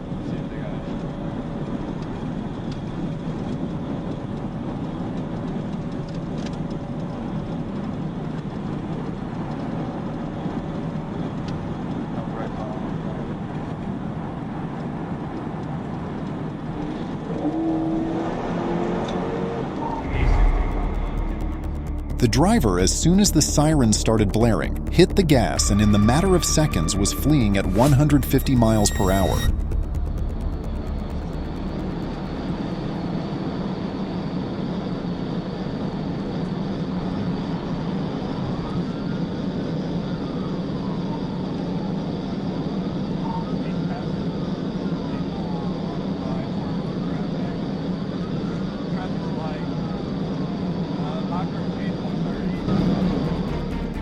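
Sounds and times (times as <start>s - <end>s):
car engine tyres and wind roar: 13.6s - 20.0s
humming engine note: 19.0s - 34.0s, 51.8s - 54.0s
faint siren wailing: 24.5s - 33.6s.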